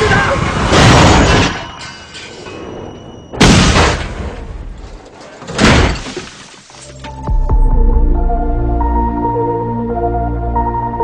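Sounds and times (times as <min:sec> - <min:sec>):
car crash impacts: 0:03.4 - 0:06.8.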